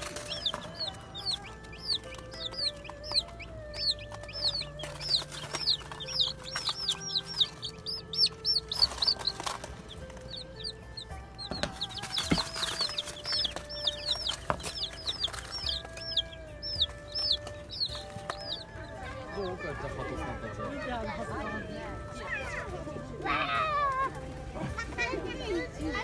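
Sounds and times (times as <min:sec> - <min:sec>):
birds chirping: 0:00.0 - 0:26.0
sharp knocks: 0:11.4 - 0:16.1.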